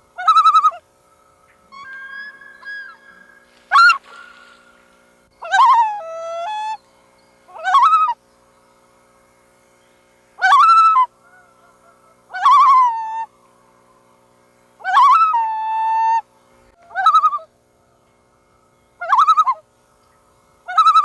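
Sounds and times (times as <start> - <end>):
loons calling: 0.0 - 8.9, 10.4 - 21.0.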